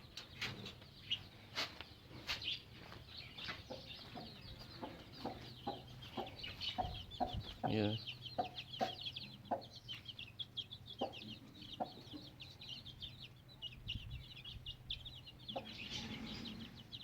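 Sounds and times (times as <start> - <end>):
chicks peeping: 0.0 - 17.0
hen clucking: 3.5 - 13.8, 14.6 - 17.0.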